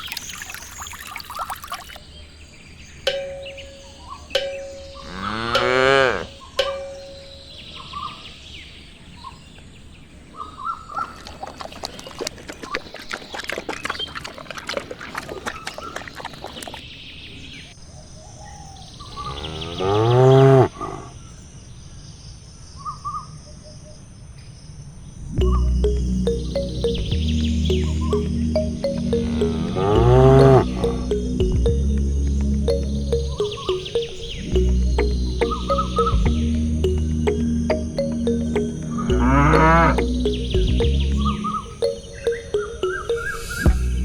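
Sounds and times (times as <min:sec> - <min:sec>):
cow mooing: 0:05.0 - 0:06.4, 0:19.3 - 0:21.1, 0:29.2 - 0:31.0, 0:39.0 - 0:40.1.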